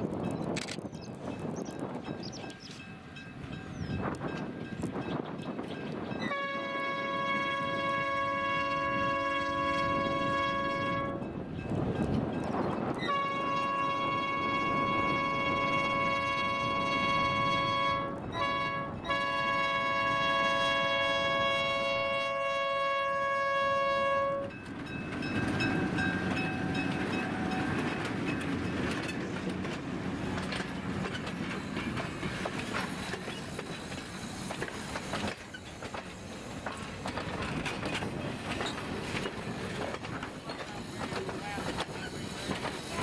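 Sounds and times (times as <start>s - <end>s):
train rumbling past: 0.0s - 43.0s
locomotive air horn: 6.2s - 11.2s, 13.0s - 24.5s
wheels clicking over rail joints: 24.5s - 43.0s.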